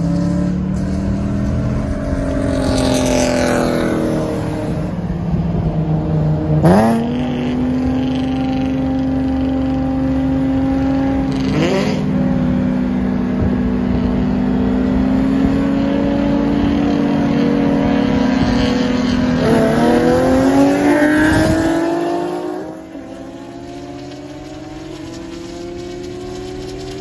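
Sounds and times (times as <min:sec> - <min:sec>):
car engines at full throttle: 0:00.0 - 0:27.0.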